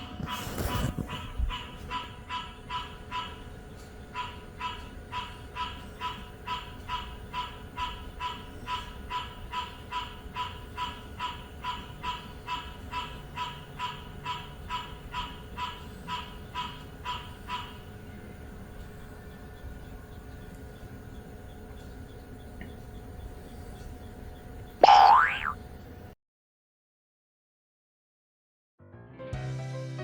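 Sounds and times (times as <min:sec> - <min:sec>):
animal calling: 0:24.8 - 0:25.6.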